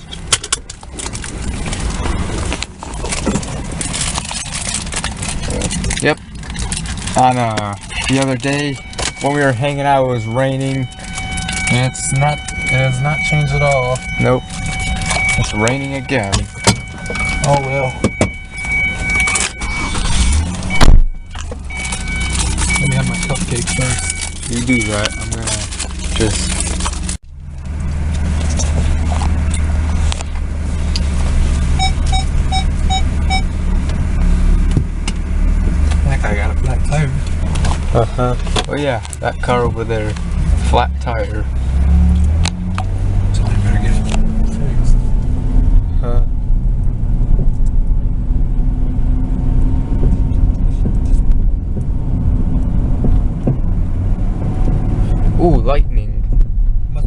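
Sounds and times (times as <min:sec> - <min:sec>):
car engine rumble in cabin: 0:00.0 - 0:57.0
road noise: 0:00.0 - 0:57.0
warning chime beeps: 0:08.2 - 0:25.7, 0:31.8 - 0:33.5.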